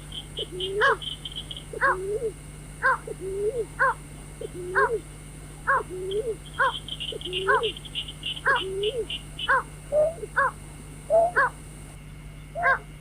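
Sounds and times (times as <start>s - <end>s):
faint high chirping: 0.0s - 5.0s, 5.6s - 12.9s
waterhen calls: 0.1s - 5.0s, 5.6s - 11.6s.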